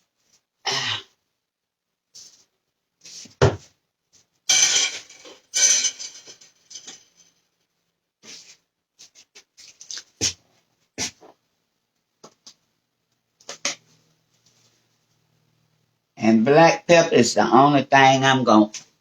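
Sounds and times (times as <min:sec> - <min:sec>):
sharp knock: 0:04.5 - 0:07.0
kitchen utensils clattering: 0:04.5 - 0:07.2.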